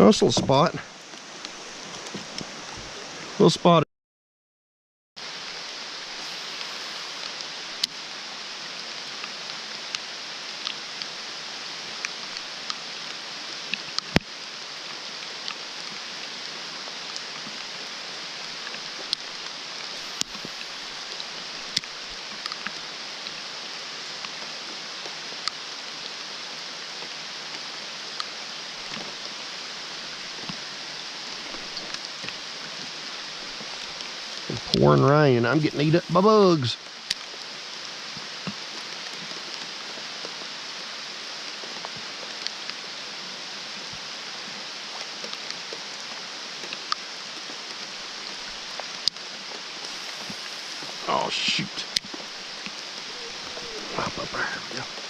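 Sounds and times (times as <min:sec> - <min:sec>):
pouring rain: 0:00.0 - 0:03.6, 0:05.2 - 0:55.0
raindrops ticking: 0:49.8 - 0:55.0.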